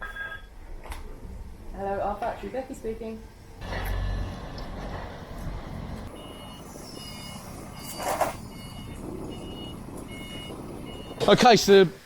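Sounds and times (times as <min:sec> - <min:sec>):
electronic warning beeper: 0:06.1 - 0:11.3.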